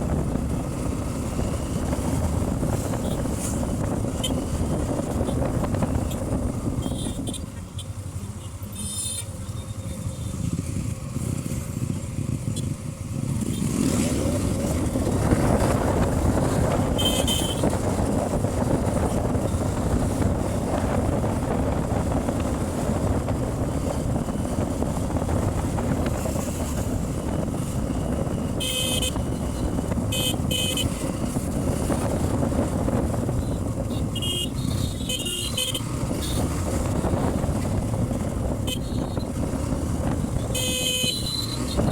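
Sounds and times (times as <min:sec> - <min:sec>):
motorcycle engine running: 0:00.0 - 0:41.9
road and wind noise: 0:00.0 - 0:41.9
vehicle horns beeping: 0:04.2 - 0:04.5, 0:06.7 - 0:09.7, 0:16.9 - 0:17.8, 0:28.5 - 0:29.4, 0:30.1 - 0:31.0, 0:33.4 - 0:36.6, 0:38.6 - 0:39.3, 0:40.3 - 0:41.9.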